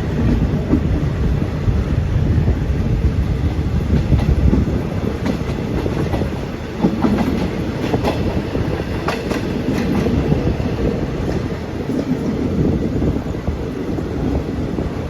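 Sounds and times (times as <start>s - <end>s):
train wheels rumbling on track: 0.0s - 15.0s
wheels clacking over rail joints: 3.9s - 12.4s.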